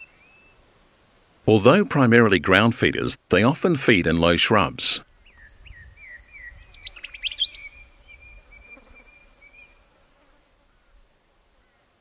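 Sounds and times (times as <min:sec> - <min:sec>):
wild bird chirping: 0:00.0 - 0:01.1, 0:05.0 - 0:11.0.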